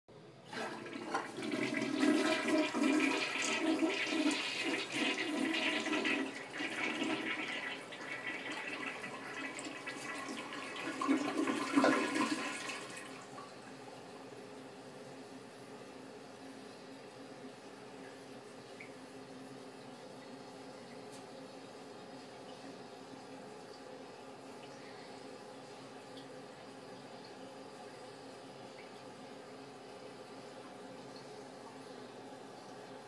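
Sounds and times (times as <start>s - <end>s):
toilet flushing: 0.4s - 13.8s.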